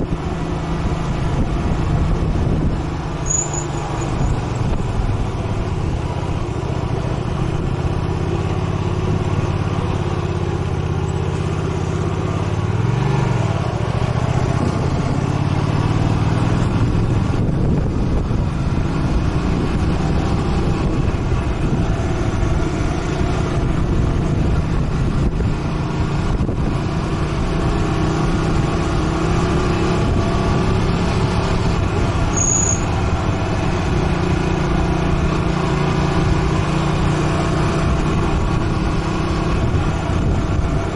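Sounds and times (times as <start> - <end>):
motorcycle engine running: 0.0 - 40.9
riding noise: 0.8 - 26.8.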